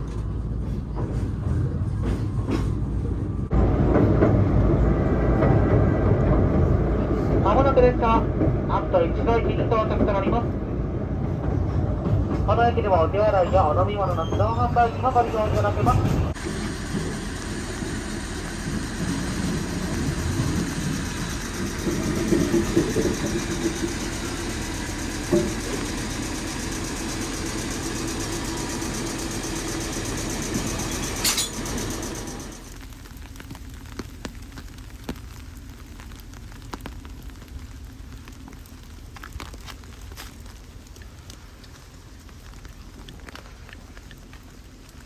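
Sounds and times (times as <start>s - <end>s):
train rumbling on rails: 0.0s - 45.0s
high wheel squeal: 13.3s - 15.2s, 30.4s - 32.4s
train wheel knock: 16.0s - 27.4s.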